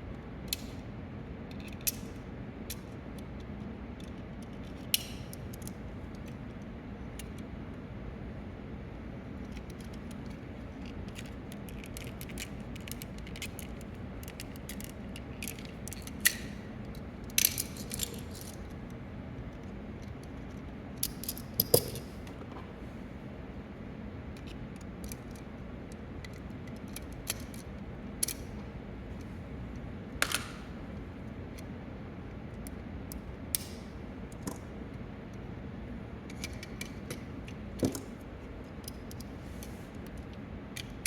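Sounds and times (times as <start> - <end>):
steady low hum: 0.0 - 41.0
small hard parts clicking: 9.4 - 18.9.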